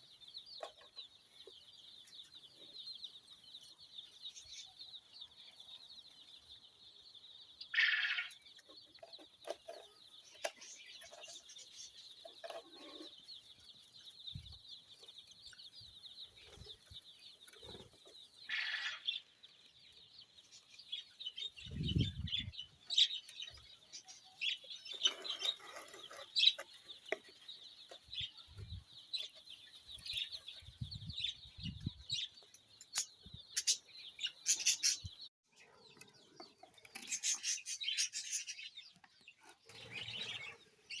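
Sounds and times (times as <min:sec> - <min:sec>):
caged birds chirping: 0:00.0 - 0:41.0
bird squawks: 0:07.7 - 0:08.4, 0:18.5 - 0:19.1.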